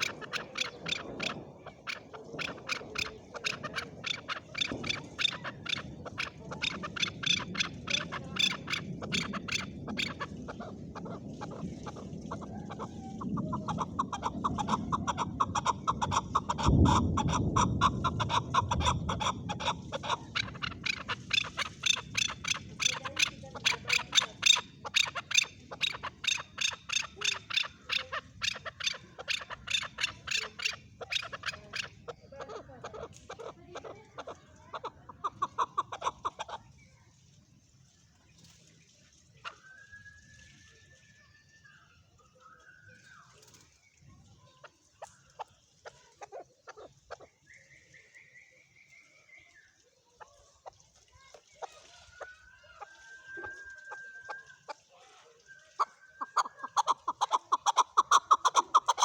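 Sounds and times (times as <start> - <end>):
low rumble: 0.0 - 22.8
partridge clucking calls: 0.0 - 36.8, 44.5 - 47.4, 50.2 - 59.0.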